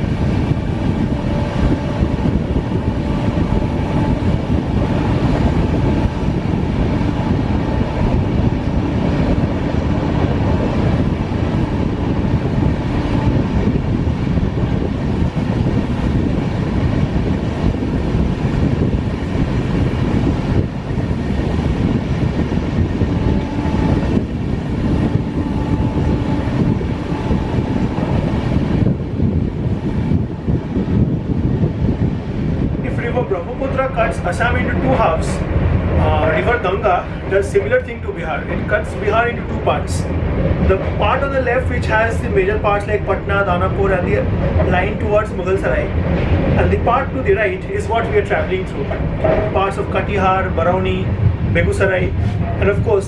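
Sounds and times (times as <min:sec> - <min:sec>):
train wheels rumbling on track: 0:00.0 - 0:53.0.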